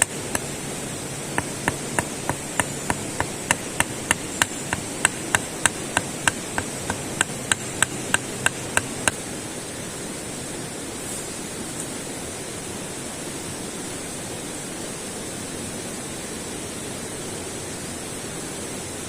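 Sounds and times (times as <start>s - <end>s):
hammering: 0.0s - 0.6s, 1.3s - 9.2s
steady rushing noise: 0.0s - 19.0s.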